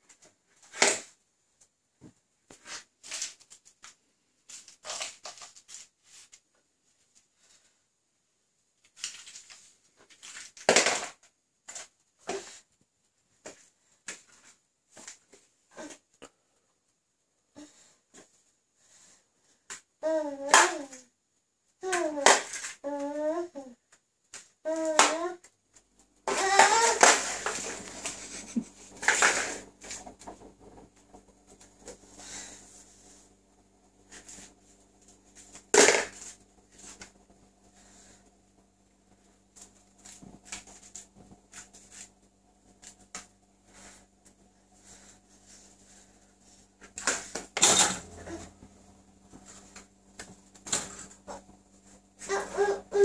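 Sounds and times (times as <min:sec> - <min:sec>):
dog crunching plastic pots: 0:26.2 - 0:32.0.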